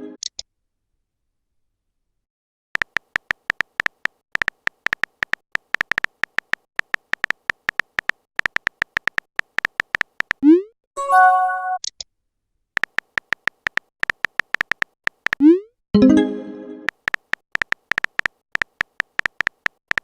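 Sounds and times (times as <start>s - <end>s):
quick keyboard tapping clicks: 2.8s - 10.4s, 12.8s - 15.5s, 16.9s - 20.0s.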